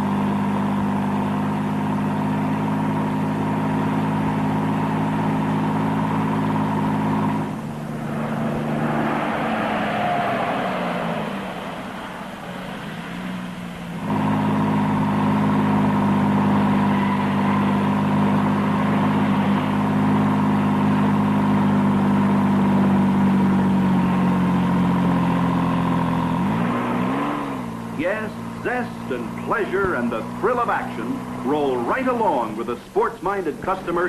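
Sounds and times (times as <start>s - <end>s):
car engine drone: 0.0s - 34.0s
road noise: 0.0s - 34.0s.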